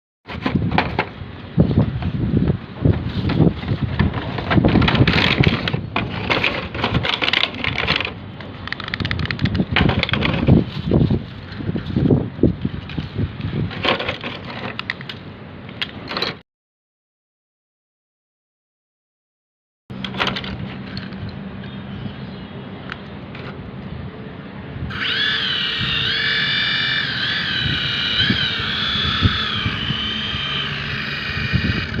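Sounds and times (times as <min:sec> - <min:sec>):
sharp clicks and knocks: 0:02.9 - 0:10.6
toy helicopter motor whine: 0:24.9 - 0:32.0.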